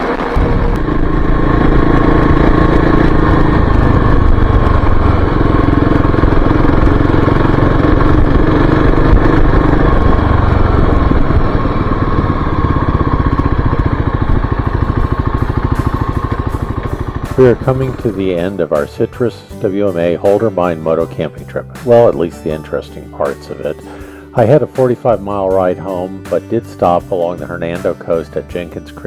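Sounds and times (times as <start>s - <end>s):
dirt bike engine running: 0.0s - 28.7s.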